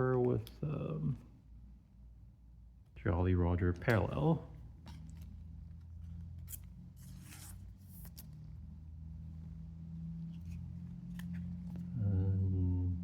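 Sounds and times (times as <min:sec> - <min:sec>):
steady low hum: 0:00.0 - 0:13.0
trading cards shuffling: 0:03.7 - 0:08.7, 0:09.9 - 0:12.0.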